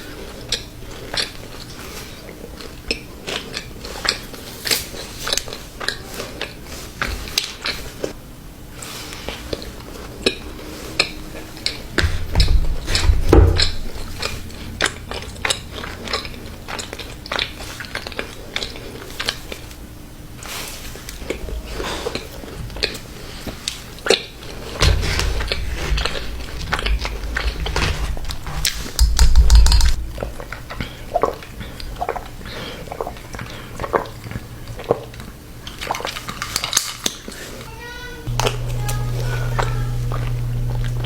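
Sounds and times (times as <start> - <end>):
person chewing cookies: 0.0 - 8.2, 14.2 - 24.7, 30.0 - 37.7
low heavy thumps: 11.9 - 15.5, 24.4 - 30.2.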